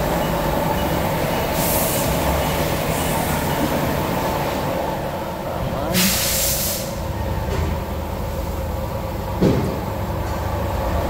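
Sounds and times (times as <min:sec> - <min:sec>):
brief hiss: 0:06.0 - 0:07.0
thud: 0:09.4 - 0:09.8.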